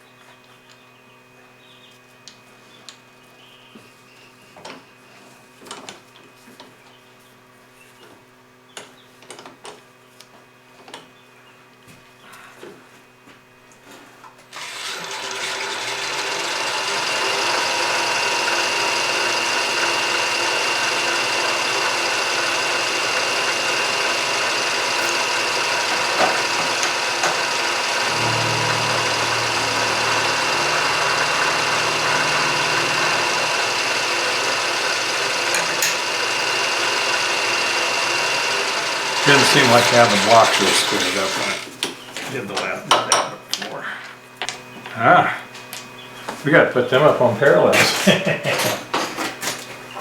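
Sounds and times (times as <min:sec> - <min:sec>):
milling machine motor whine: 0:14.6 - 0:41.8
low hum: 0:26.3 - 0:39.2.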